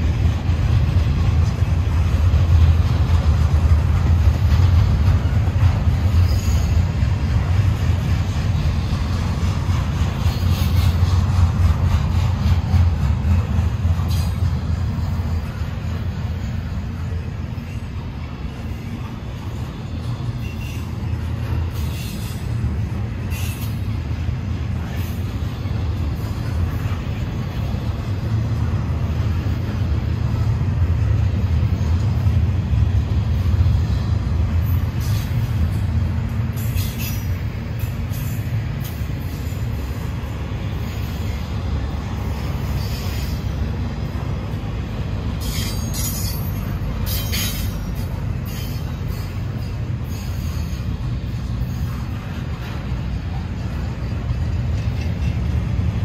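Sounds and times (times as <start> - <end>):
freight train rumbling on rails: 0.0 - 56.0
wheels screeching: 5.2 - 7.1.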